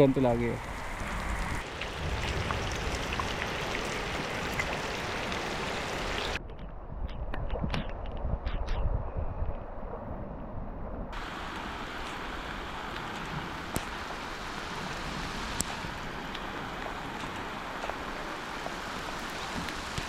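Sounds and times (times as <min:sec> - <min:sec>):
steady rain falling: 0:00.0 - 0:06.4, 0:11.2 - 0:20.0.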